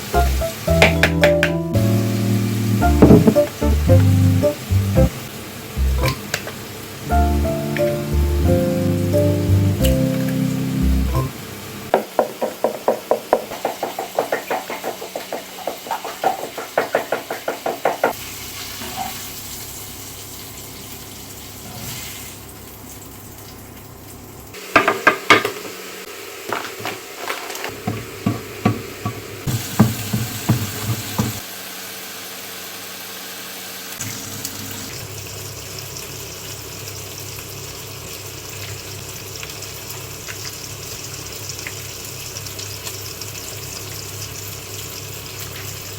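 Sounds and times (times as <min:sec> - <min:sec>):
hiss of running water or sizzling: 0:00.0 - 0:23.4, 0:25.6 - 0:45.9
knocks and clatter: 0:03.0 - 0:03.5, 0:11.9 - 0:18.2
quick even tapping: 0:12.1 - 0:18.2.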